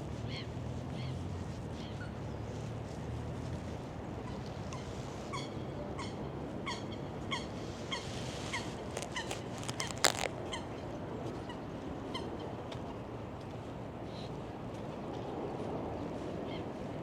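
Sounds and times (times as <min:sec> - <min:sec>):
bird calling: 0:07.9 - 0:10.7.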